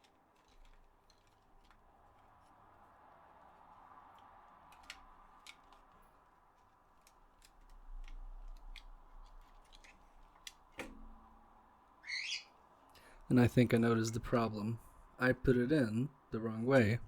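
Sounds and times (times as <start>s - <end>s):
plastic parts clicking: 0.0s - 2.5s, 4.1s - 11.2s.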